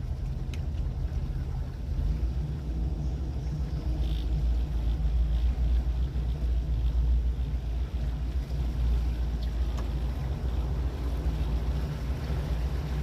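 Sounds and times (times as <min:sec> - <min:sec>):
motorboat engine rumbling: 0:00.0 - 0:13.0.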